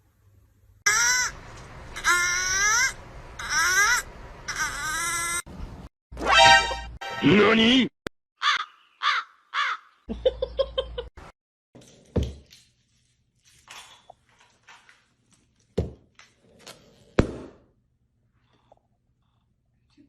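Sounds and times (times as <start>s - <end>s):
animal calling: 2.0s - 5.5s.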